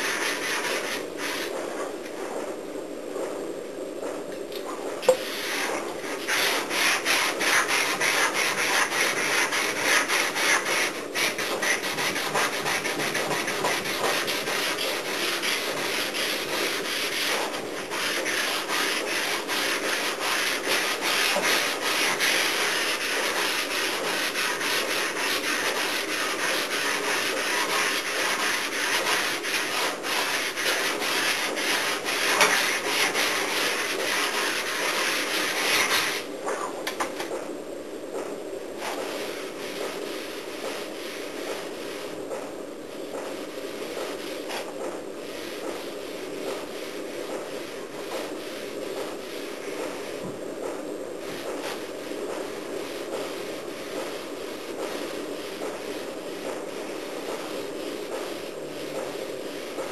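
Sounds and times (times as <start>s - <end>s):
sandpaper scraping back and forth: 0.0s - 2.4s, 5.2s - 36.3s.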